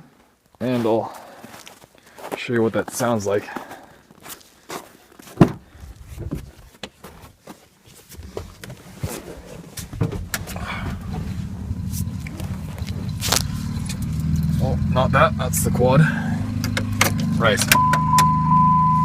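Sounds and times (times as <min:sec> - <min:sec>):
footsteps: 0:00.6 - 0:14.4
engine idling: 0:10.1 - 0:18.5.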